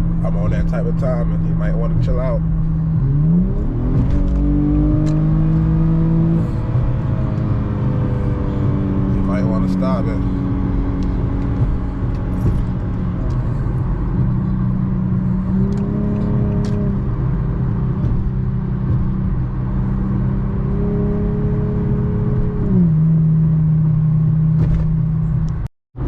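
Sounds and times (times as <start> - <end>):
car engine pulling hard: 0.0 - 25.6.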